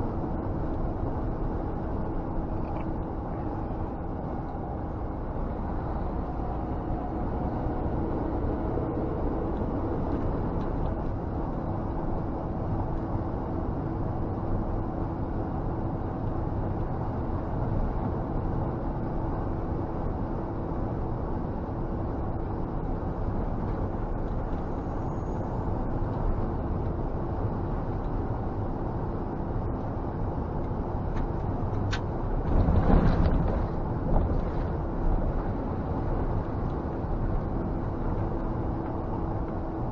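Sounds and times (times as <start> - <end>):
road noise: 0.0 - 39.9
truck diesel engine hum: 0.0 - 39.9.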